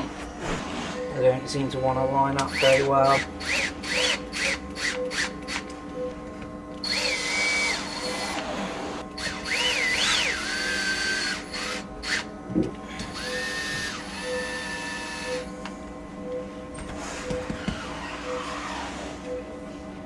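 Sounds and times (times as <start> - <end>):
cordless drill whining: 2.4 - 5.7, 6.8 - 12.3, 13.0 - 15.5.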